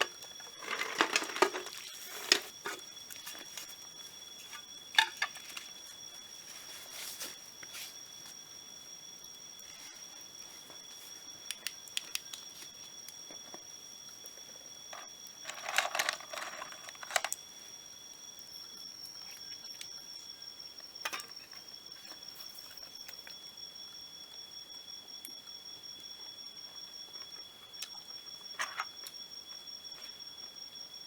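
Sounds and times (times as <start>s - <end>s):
rustling handling noise: 0.0s - 8.0s, 14.9s - 17.4s
insects droning: 0.0s - 31.0s.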